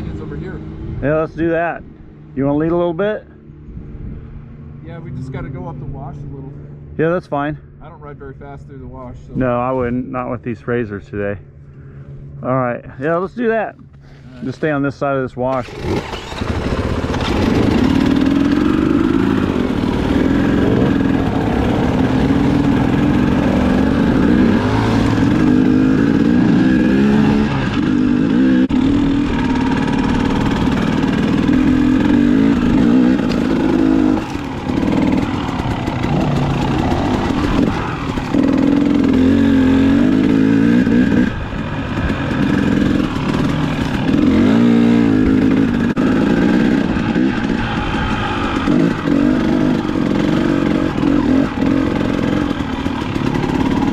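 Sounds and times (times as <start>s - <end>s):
dirt bike engine revving: 15.6s - 53.9s.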